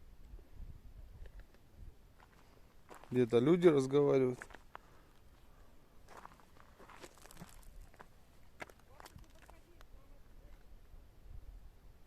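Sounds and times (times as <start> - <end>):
faint footsteps and scuffs: 4.4 - 9.9.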